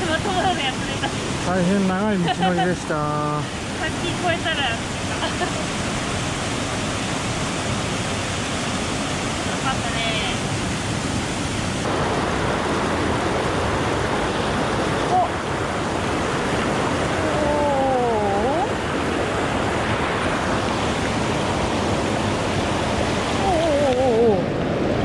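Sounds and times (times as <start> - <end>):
mountain stream rushing: 0.0 - 25.0.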